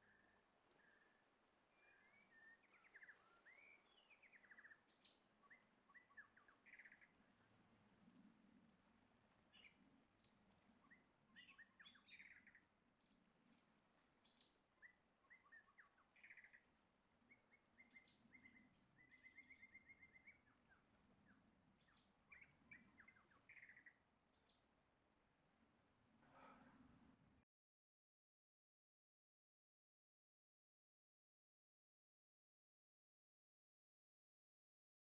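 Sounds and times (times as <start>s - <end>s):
small birds chirping: 0.0s - 27.4s.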